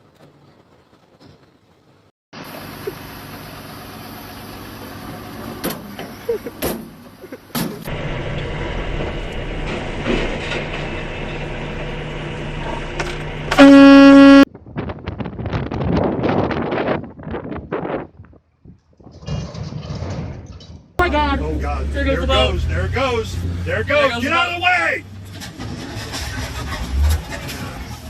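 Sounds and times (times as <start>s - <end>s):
engine and traffic noise: 0.0s - 14.5s, 21.0s - 28.0s.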